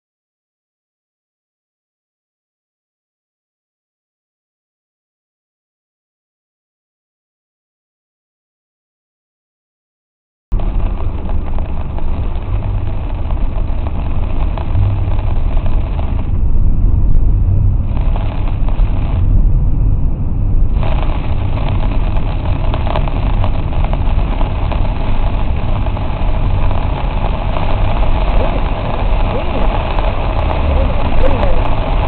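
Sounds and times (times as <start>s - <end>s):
road and engine rumble: 10.5s - 32.0s
rain and wet tyres hiss: 10.6s - 32.0s.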